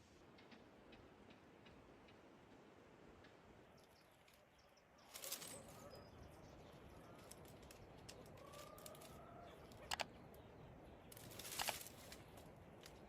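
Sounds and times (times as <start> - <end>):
sharp clicks: 9.7 - 10.2.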